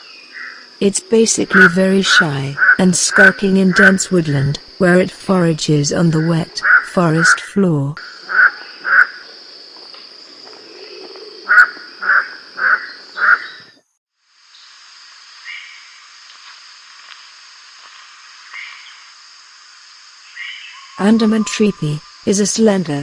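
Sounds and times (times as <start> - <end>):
steady hiss: 14.2 - 23.0.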